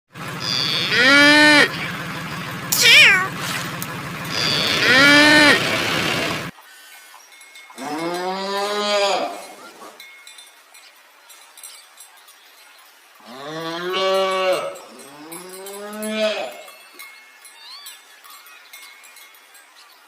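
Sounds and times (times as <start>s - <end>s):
low long animal call: 0.4s - 3.4s, 4.3s - 6.5s
cat meowing: 2.7s - 3.3s.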